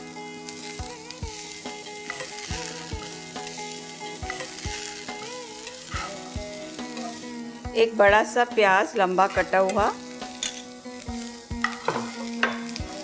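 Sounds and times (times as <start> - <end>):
soft background music: 0.0 - 13.0
spices sizzling in hot oil: 0.0 - 13.0
spoon knocking against pan: 11.6 - 12.8.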